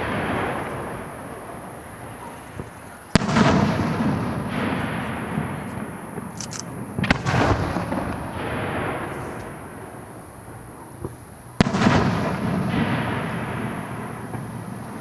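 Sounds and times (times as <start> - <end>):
small firework pops: 2.2 - 10.0, 10.9 - 13.2.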